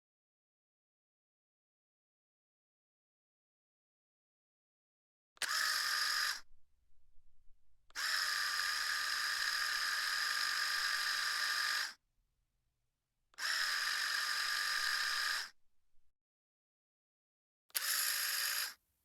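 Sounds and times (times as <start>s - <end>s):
electric shaver buzzing: 5.4s - 6.5s, 7.9s - 12.0s, 13.4s - 15.6s, 17.8s - 18.8s.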